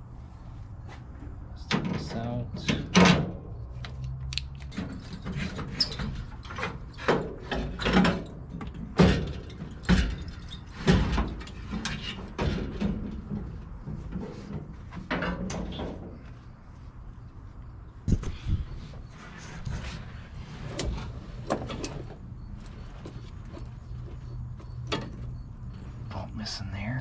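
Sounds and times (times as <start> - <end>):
tools and metal parts clanking: 1.6 - 16.4, 19.4 - 26.1.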